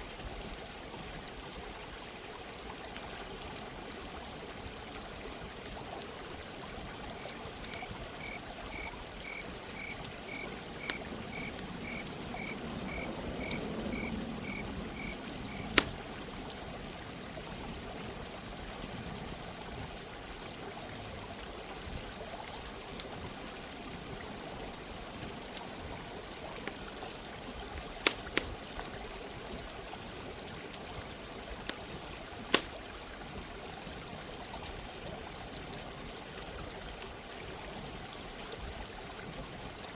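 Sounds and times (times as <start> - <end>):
stream running water: 0.0 - 39.9
high repeated peeping call: 7.2 - 15.7
campfire crackling pops: 7.2 - 16.1, 28.0 - 28.6, 31.6 - 32.8.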